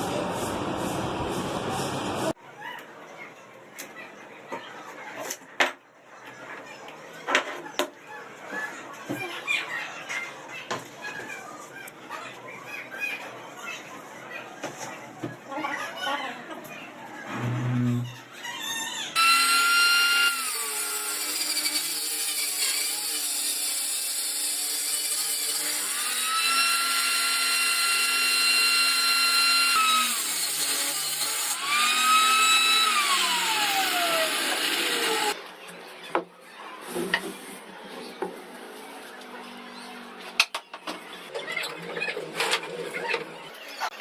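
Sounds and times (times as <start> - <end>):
power tool motor whining: 30.8 - 35.4.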